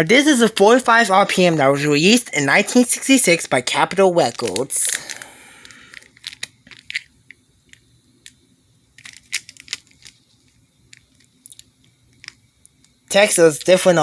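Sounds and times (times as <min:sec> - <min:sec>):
plastic packaging crinkling: 0:03.8 - 0:07.1, 0:09.0 - 0:12.4.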